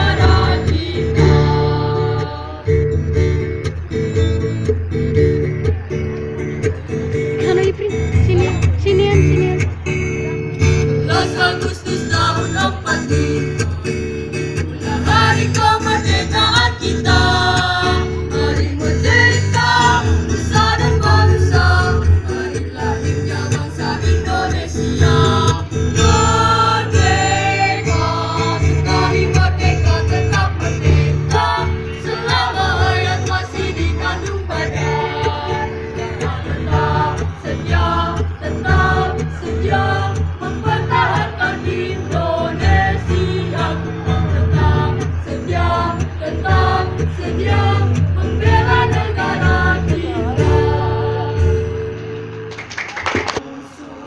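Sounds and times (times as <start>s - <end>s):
choir singing in unison: 0.0s - 2.9s, 11.0s - 13.8s, 14.8s - 51.8s
strummed acoustic guitar: 0.0s - 53.4s.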